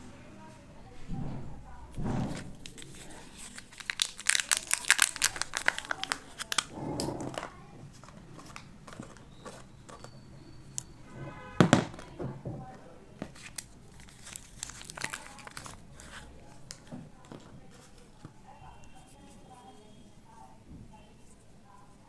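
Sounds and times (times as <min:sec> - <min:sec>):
wrapper crinkling and tearing: 0:02.4 - 0:09.7, 0:13.3 - 0:18.1.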